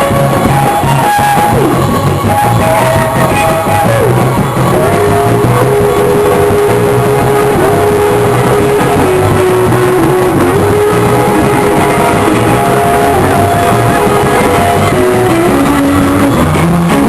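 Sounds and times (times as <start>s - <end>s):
live gospel band music: 0.0s - 17.0s
sliding guitar melody: 0.0s - 17.0s.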